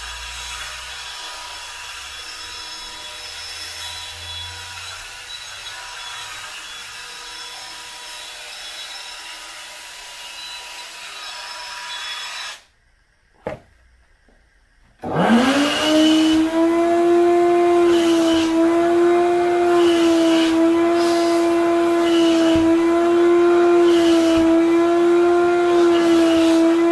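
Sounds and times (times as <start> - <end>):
wet vacuum cleaner motor whine: 15.0 - 26.9.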